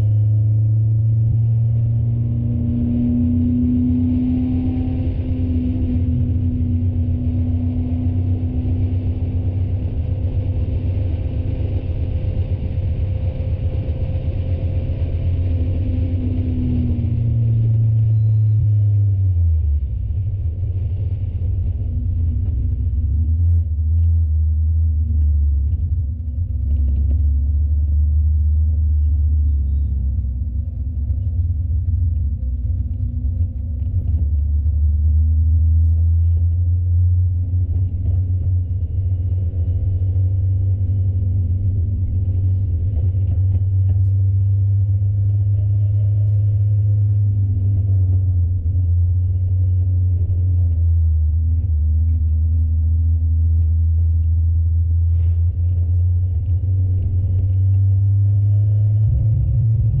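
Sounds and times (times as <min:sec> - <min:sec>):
race car engine drone: 0:00.0 - 1:00.0.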